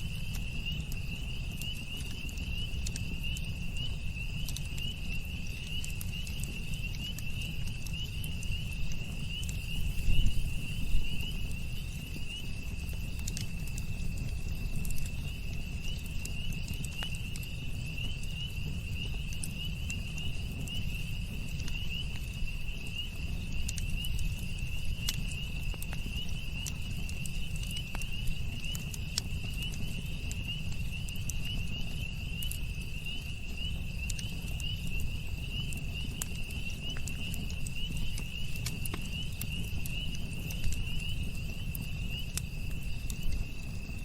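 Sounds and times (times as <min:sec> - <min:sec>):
campfire crackling and popping: 0:00.0 - 0:44.0
crickets chirping: 0:00.0 - 0:44.0.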